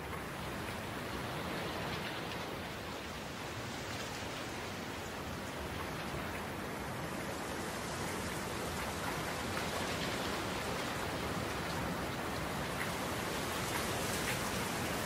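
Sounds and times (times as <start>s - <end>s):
steady rain-like noise: 0.0s - 15.0s.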